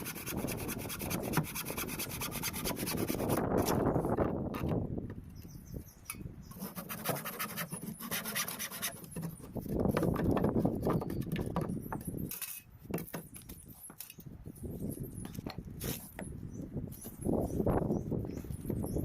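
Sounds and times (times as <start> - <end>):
scraping and rubbing on wood: 0.0 - 4.8, 6.5 - 14.1.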